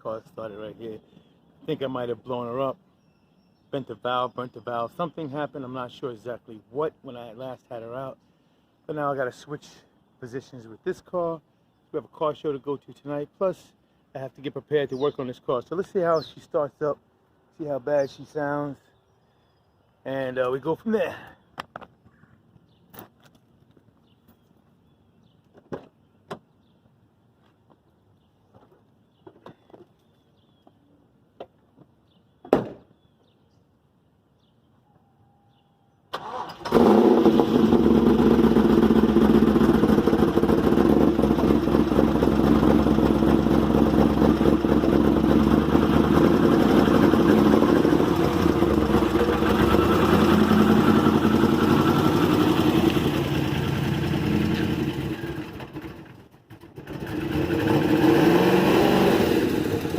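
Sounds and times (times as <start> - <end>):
engine starting and idling roughly: 36.1 - 58.0.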